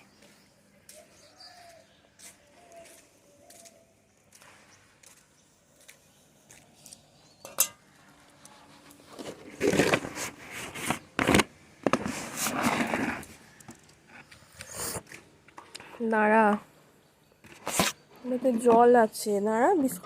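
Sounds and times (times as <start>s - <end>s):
dish clattering and scraping: 7.4s - 7.8s.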